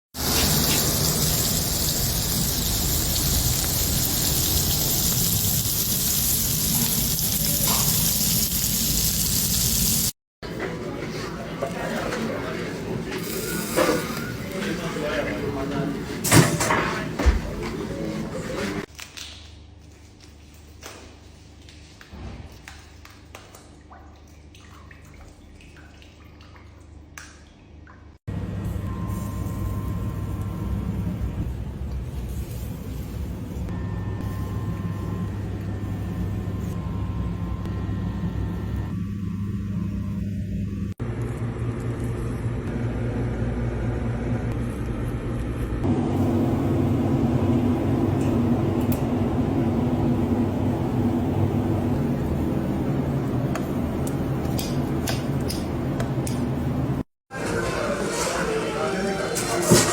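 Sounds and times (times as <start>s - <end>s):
meat sizzling: 0.2s - 10.2s
small sharp clicks and drips: 20.2s - 28.2s.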